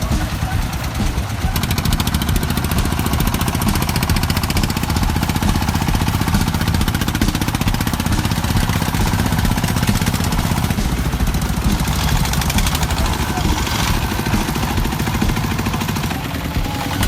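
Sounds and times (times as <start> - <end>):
farm vehicle engine chugging: 0.0 - 17.0.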